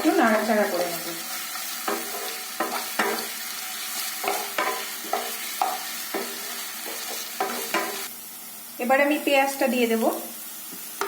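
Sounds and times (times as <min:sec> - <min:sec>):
food sizzling in hot oil: 0:00.0 - 0:11.0
spatula scraping and clinking pan: 0:00.8 - 0:08.1.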